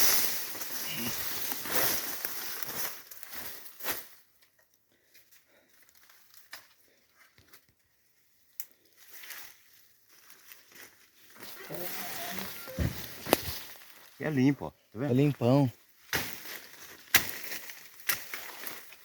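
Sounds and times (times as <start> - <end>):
dry leaves rustling underfoot: 0.0 - 4.6, 5.3 - 14.2, 15.8 - 19.0
twigs snapping: 16.1 - 19.0.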